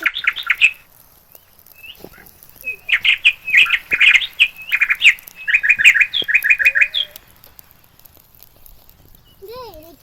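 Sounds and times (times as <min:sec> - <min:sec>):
bird chirping: 0:00.0 - 0:09.9.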